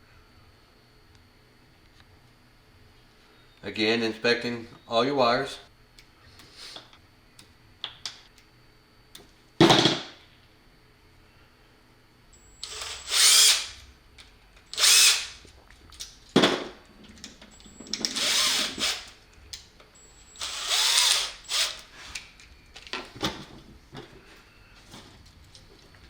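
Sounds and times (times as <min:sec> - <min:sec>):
power drill spinning: 0:12.5 - 0:13.8, 0:14.7 - 0:15.4, 0:17.5 - 0:19.2, 0:20.0 - 0:22.2.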